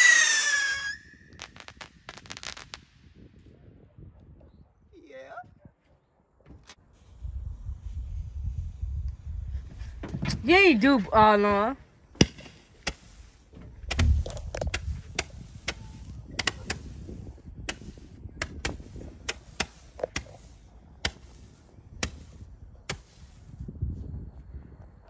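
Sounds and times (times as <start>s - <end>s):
fireworks popping: 0.0s - 3.8s, 11.2s - 23.6s.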